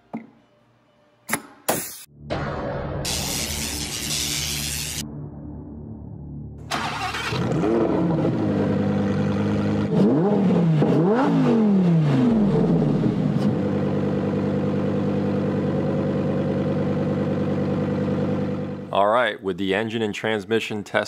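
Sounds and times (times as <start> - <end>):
sports car engine revving: 6.9 - 18.7.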